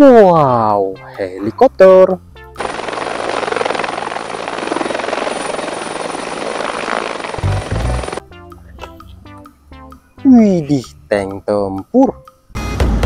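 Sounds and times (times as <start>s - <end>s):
helicopter rotor chopping: 2.6s - 8.2s
turbine noise: 2.6s - 8.2s.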